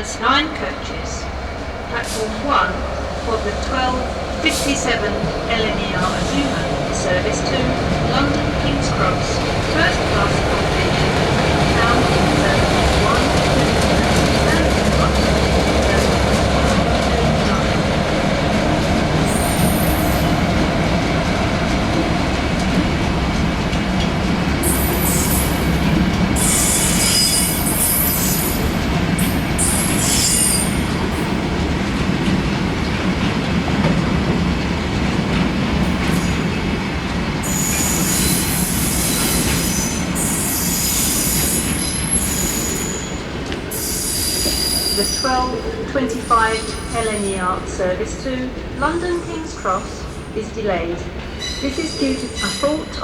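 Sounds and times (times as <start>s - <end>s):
train wheels rumbling on track: 0.0s - 53.0s
high-pitched wheel squeals: 26.4s - 28.5s, 37.5s - 45.4s.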